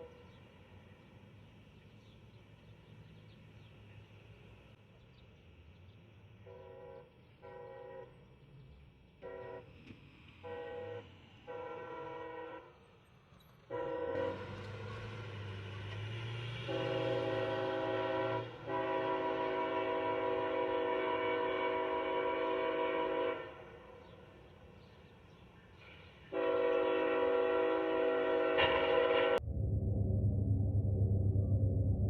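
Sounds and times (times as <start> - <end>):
locomotive air horn blasts: 6.4 - 8.2, 9.2 - 9.8, 10.4 - 12.8, 13.7 - 15.5, 16.4 - 23.9, 26.3 - 29.4
low rumble: 29.4 - 32.0.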